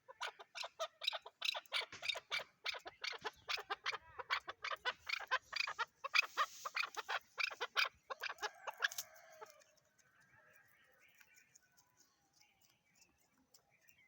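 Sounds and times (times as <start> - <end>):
partridge clucking call: 0.0 - 9.1.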